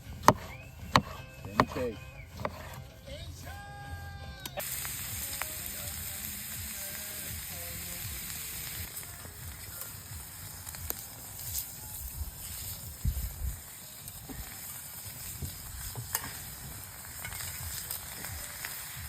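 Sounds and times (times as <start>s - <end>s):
food sizzling in a hot pan: 4.6s - 19.0s.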